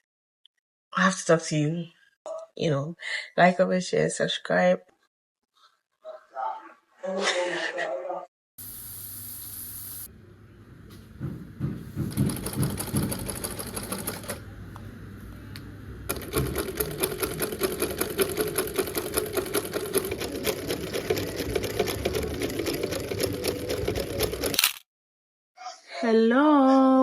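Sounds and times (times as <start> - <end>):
sewing machine stitching: 12.0 - 14.4, 16.1 - 24.6.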